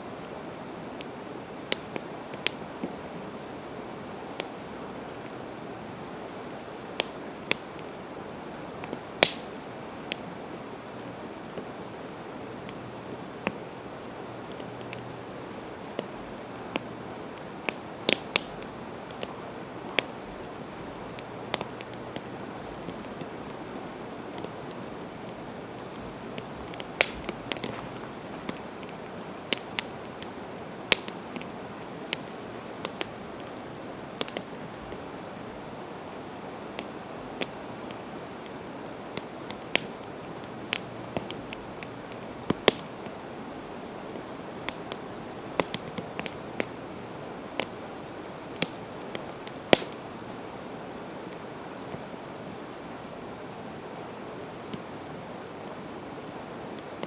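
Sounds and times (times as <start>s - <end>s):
campfire crackling and popping: 0.2s - 57.0s
fire hissing: 17.4s - 30.9s, 40.8s - 51.5s
cricket chirping: 43.4s - 51.0s.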